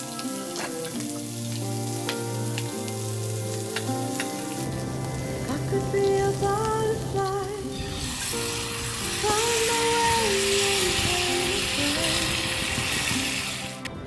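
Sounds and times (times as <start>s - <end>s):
steak sizzling in a pan: 0.0s - 13.8s
sharp pops of frying: 0.1s - 4.7s
pop song: 5.4s - 14.0s.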